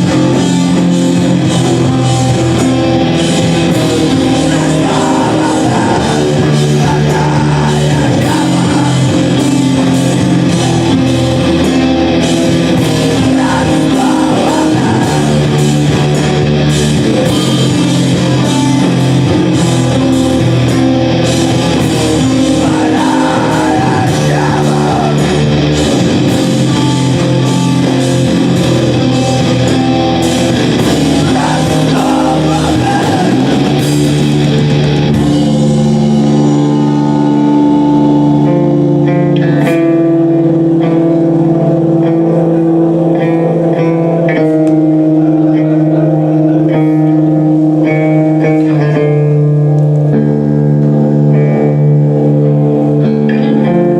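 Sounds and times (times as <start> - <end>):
live rock band playing: 0.0 - 53.9
person singing: 3.1 - 20.7, 21.3 - 28.0, 28.6 - 34.7.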